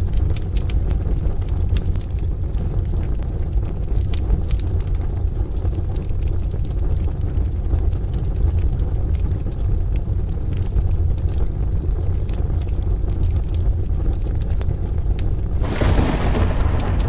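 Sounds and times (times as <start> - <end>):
wood fire crackling and popping: 0.1 - 17.0
distant thunder: 15.6 - 17.0
rain rumble: 15.6 - 17.0.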